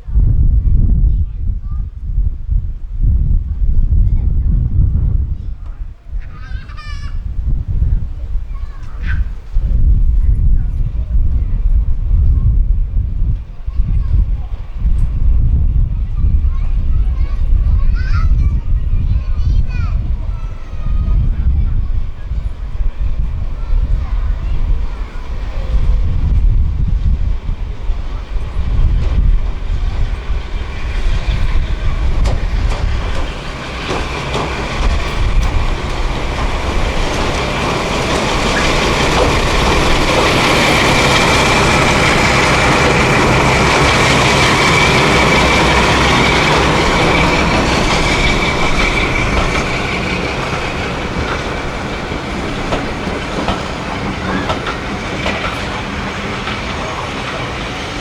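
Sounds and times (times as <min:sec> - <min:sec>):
train wheels clicking over rail joints: 0:08.0 - 0:58.0
high wheel squeal: 0:30.7 - 0:55.2.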